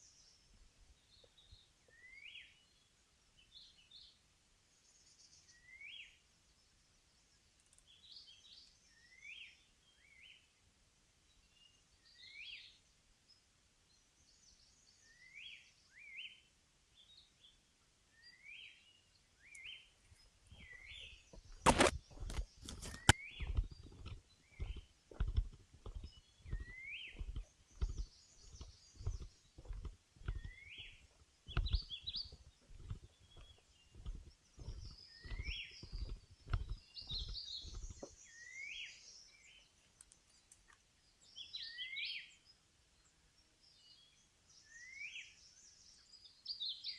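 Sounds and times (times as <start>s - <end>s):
birds chirping: 0.0s - 4.2s, 11.3s - 46.9s
footsteps on forest trail: 20.5s - 38.9s
sharp cracks underfoot: 20.6s - 38.2s.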